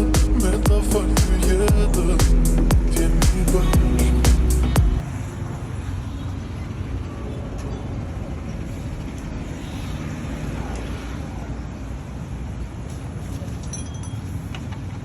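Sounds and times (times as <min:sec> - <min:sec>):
vehicle engine running: 0:00.0 - 0:05.0.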